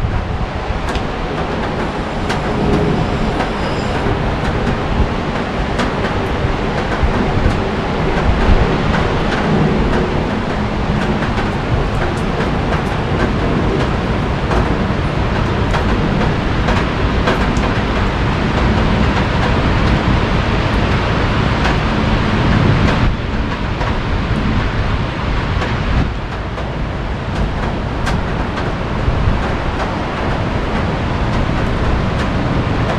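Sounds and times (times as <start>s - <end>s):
heavy rain hissing: 0.0s - 13.4s.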